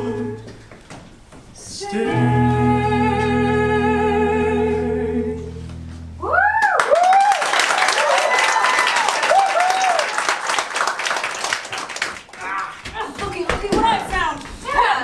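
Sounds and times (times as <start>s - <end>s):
audience clapping and cheering: 6.5s - 13.5s.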